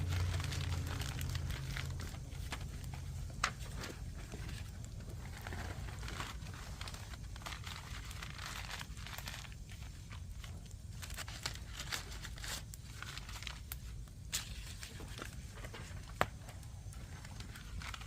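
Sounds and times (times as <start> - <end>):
low rumble: 0.0 - 8.0
wood fire crackling and popping: 0.0 - 18.0.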